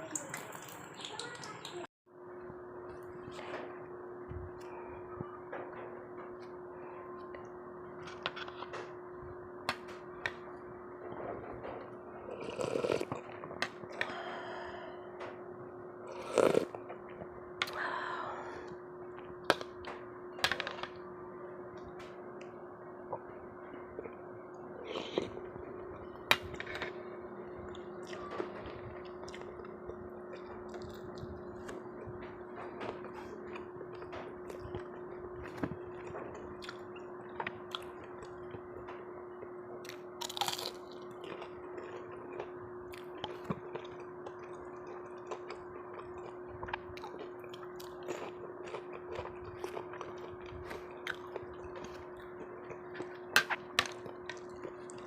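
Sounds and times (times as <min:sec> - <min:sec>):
steady low hum: 0:00.0 - 0:55.0
person chewing and eating: 0:12.2 - 0:15.0, 0:16.1 - 0:19.8, 0:23.0 - 0:55.0.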